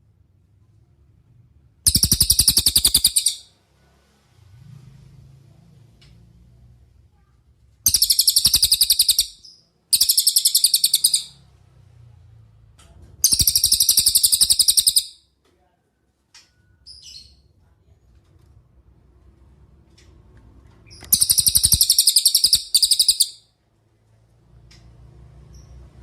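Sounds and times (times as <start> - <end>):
songbird trilling: 1.9 - 3.4, 7.9 - 11.4, 13.2 - 15.2, 21.0 - 23.4
faint bird chirps: 1.9 - 3.6, 7.9 - 11.5, 13.2 - 15.3, 20.9 - 23.5.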